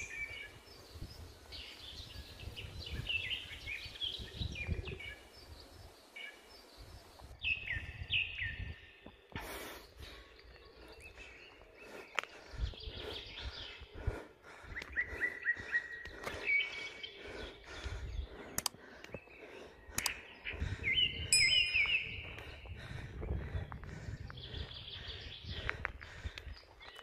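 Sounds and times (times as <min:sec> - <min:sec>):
small birds chirping: 0:00.0 - 0:27.0
sharp clicks: 0:18.5 - 0:19.2, 0:20.0 - 0:20.2.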